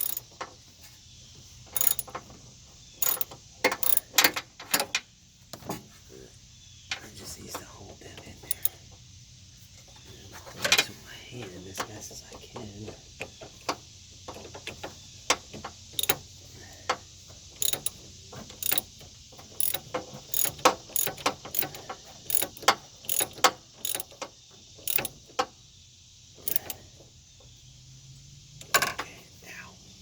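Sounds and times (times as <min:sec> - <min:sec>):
ratchet wrench clicking: 0:00.0 - 0:00.3, 0:01.8 - 0:02.2, 0:03.0 - 0:04.4, 0:08.5 - 0:08.8, 0:16.0 - 0:16.2, 0:17.6 - 0:18.0, 0:18.6 - 0:18.9, 0:19.6 - 0:24.2, 0:24.8 - 0:25.2, 0:26.4 - 0:26.8.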